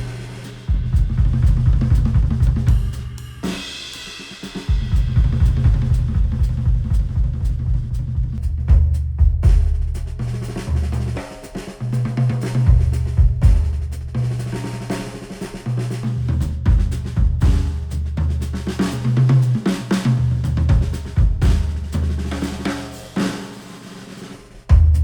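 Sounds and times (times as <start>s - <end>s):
heavy bass: 0.0s - 3.7s, 4.7s - 11.3s, 11.9s - 14.9s, 15.7s - 23.1s, 24.7s - 25.0s
instrumental music with drums: 0.0s - 25.0s.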